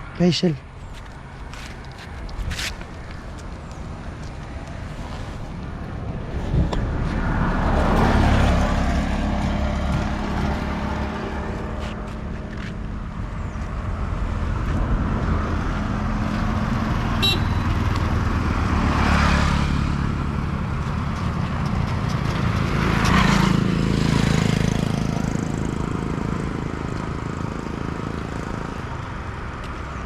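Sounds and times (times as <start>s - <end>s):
vehicle engine with road noise: 0.0s - 30.0s
vehicles passing: 0.0s - 30.0s
short high horn toot: 17.2s - 17.9s.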